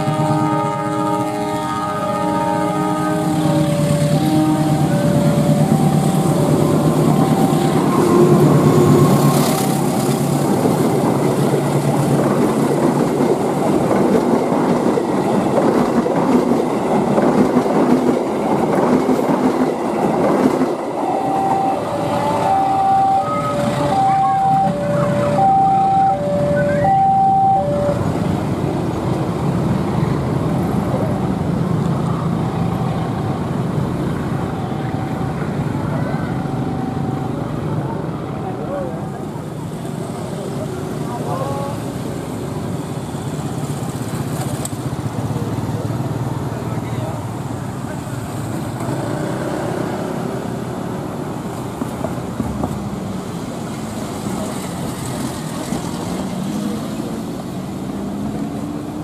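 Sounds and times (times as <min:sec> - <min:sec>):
passenger train passing: 0:00.0 - 0:59.0
two-tone warning alarm beeping: 0:03.4 - 0:10.0, 0:20.9 - 0:28.2.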